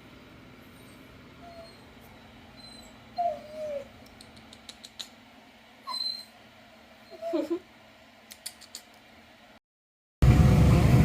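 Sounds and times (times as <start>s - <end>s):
dog whining: 0.7s - 4.2s, 5.8s - 7.7s.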